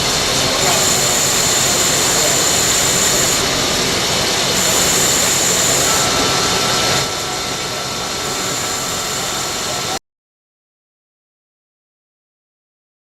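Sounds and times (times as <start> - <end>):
high whine: 0.0 - 10.0
lathe machining hiss: 0.0 - 10.0.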